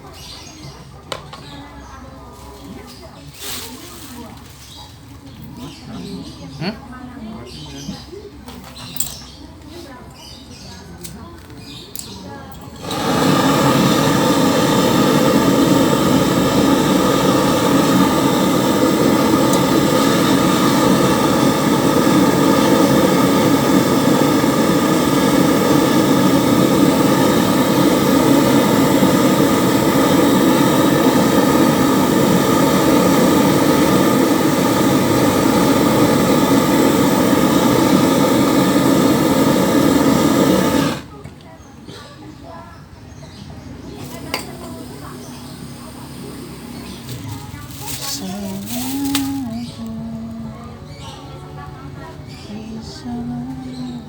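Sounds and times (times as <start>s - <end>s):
gas torch flame rushing: 12.7s - 41.2s, 43.9s - 49.8s.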